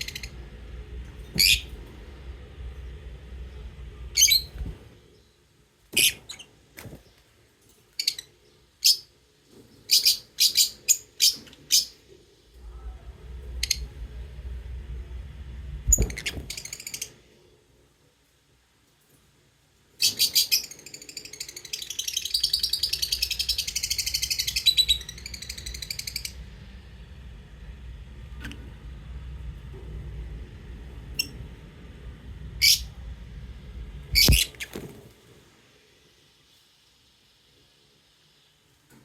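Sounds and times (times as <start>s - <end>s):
lovebirds chirping: 1.4s - 1.8s, 3.5s - 7.3s, 20.0s - 26.4s, 34.1s - 35.0s.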